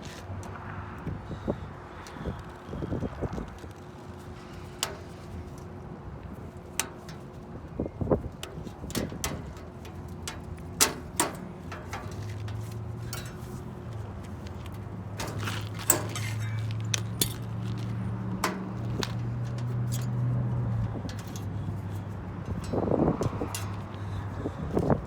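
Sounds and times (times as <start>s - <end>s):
metal clinks of hand tools: 13.1s - 13.6s, 15.2s - 17.6s.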